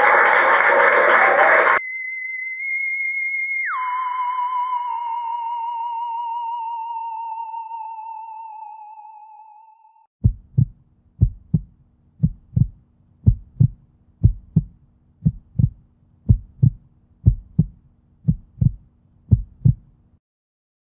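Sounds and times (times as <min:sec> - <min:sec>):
heartbeat thumps: 0:10.2 - 0:19.9.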